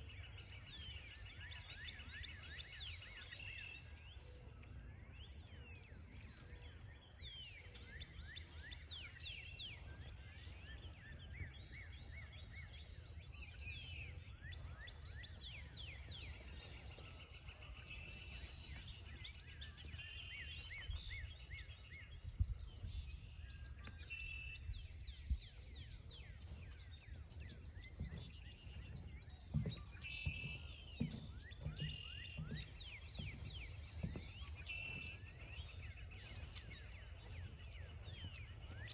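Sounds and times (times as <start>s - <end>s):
songbirds chirping: 0.0s - 38.9s
soft thumps: 28.0s - 38.8s.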